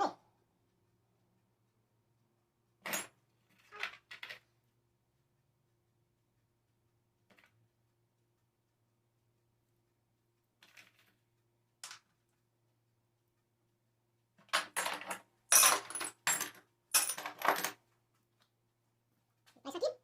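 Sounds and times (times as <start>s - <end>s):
small metal objects clinking: 14.6s - 17.8s.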